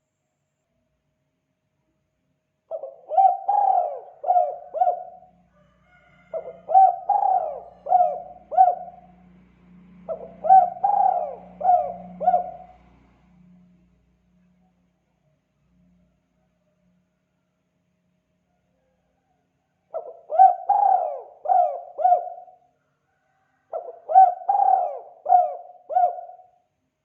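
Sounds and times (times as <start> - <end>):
dove cooing: 2.7 - 5.4, 6.3 - 9.2, 10.0 - 12.9, 19.9 - 22.7, 23.7 - 26.6.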